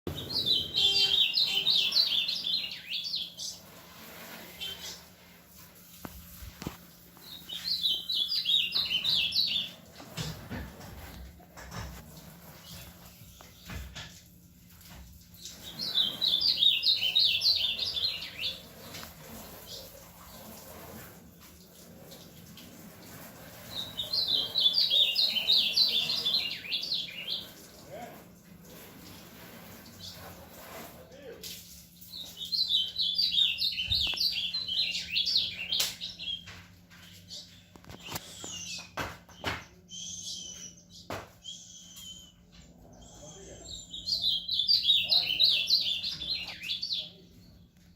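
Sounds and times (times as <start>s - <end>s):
bird singing warbling notes: 0.1s - 3.3s
bird warbling song: 0.1s - 3.7s, 7.2s - 9.9s, 15.3s - 19.9s, 23.6s - 27.7s, 32.1s - 47.6s.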